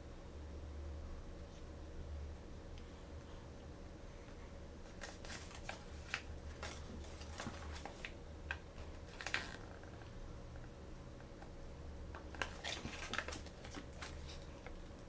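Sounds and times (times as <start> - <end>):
plastic toys clicking and crinkling: 12.2 - 15.0.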